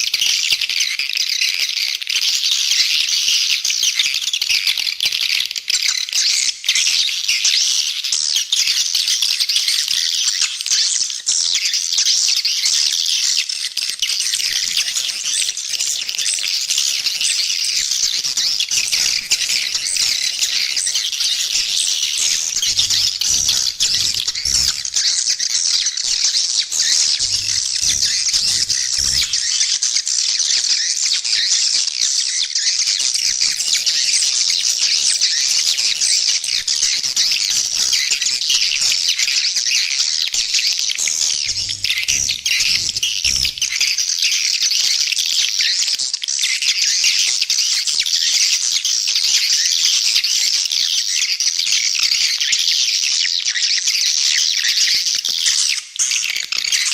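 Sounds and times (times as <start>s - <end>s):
swiftlets twittering and chirping: 0.0s - 48.6s, 49.2s - 56.9s.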